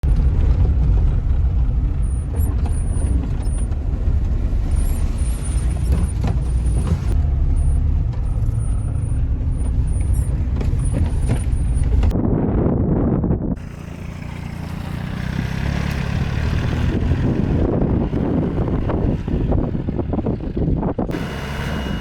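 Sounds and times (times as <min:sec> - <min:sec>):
knocks and rattles: 0:00.0 - 0:07.2, 0:09.4 - 0:12.2
vehicle engine rumble: 0:00.0 - 0:22.0.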